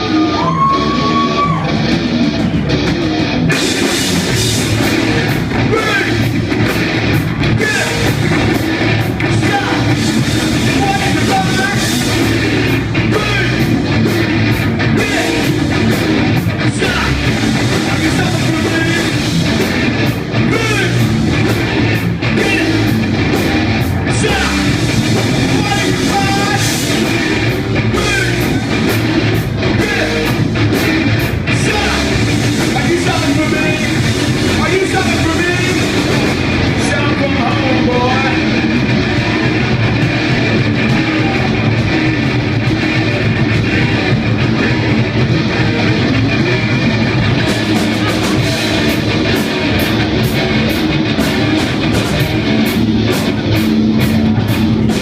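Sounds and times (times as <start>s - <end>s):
drum kit: 0.0s - 55.0s
electric guitar: 0.0s - 55.0s
live heavy rock band: 0.0s - 55.0s
person singing: 9.2s - 13.8s, 14.8s - 16.0s, 16.6s - 19.3s, 24.1s - 28.9s, 31.5s - 39.8s.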